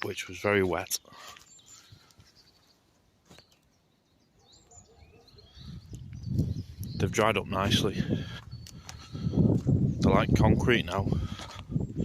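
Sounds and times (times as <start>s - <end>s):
faint bird chirps: 1.0s - 7.4s.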